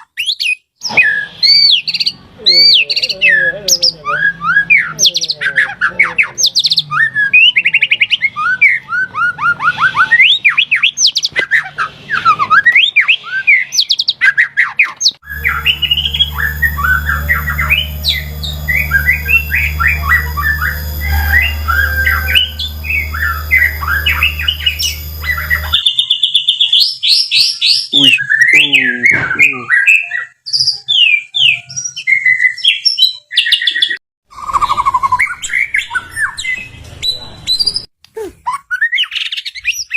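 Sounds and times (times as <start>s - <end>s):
bird singing whistles and trills: 0.0s - 37.9s
steady low hum: 15.2s - 25.8s.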